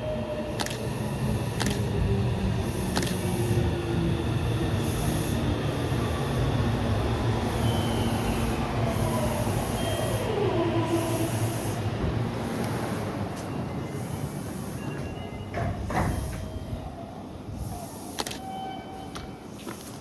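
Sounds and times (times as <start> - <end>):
electric train braking: 0.4 - 16.8.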